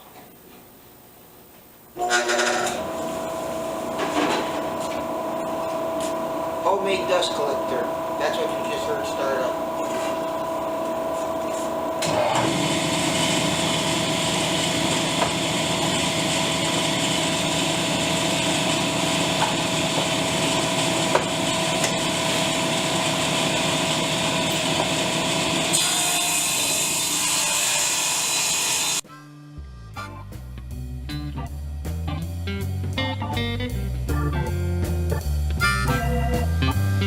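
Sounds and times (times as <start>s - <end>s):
dust collector running: 2.0s - 29.0s
table saw cutting wood: 2.0s - 29.1s
guitar music: 29.0s - 37.0s.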